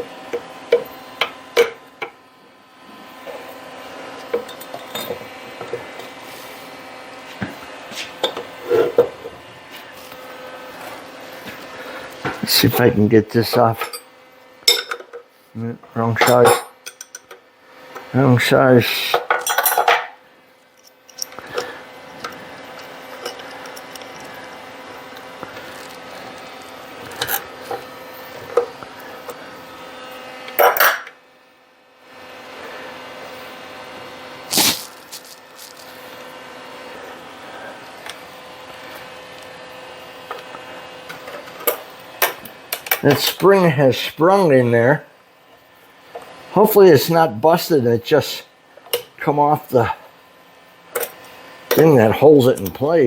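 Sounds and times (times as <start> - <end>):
steady hum: 34.4 - 38.8.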